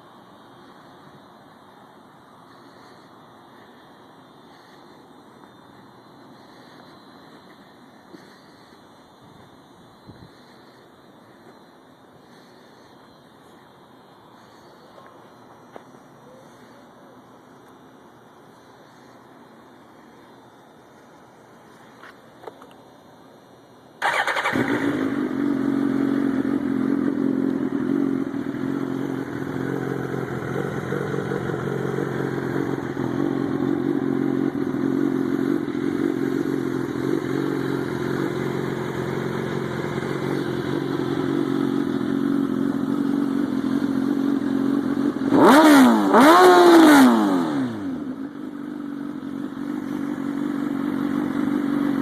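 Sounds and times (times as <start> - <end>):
motorcycle engine revving: 24.0 - 52.0
motorcycle engine starting and idling: 24.0 - 52.0.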